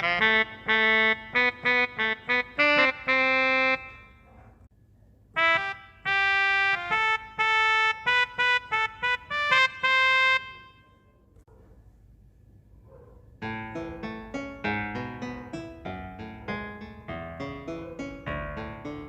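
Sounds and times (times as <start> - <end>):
keyboard quick notes: 0.0 - 4.2, 5.4 - 11.0
keyboard brass melody: 0.0 - 4.3, 5.3 - 11.2, 13.4 - 19.0.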